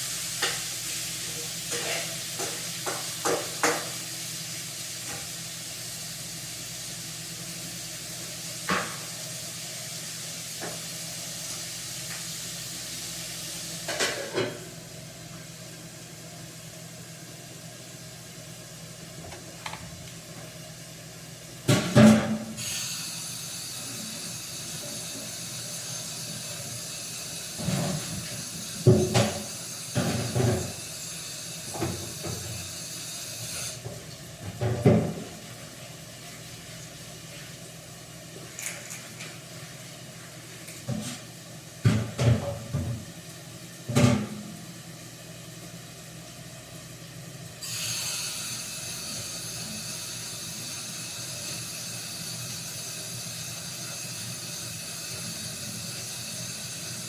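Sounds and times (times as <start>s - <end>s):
food sizzling in a pan: 0.0s - 17.4s, 21.6s - 34.2s, 47.6s - 57.0s.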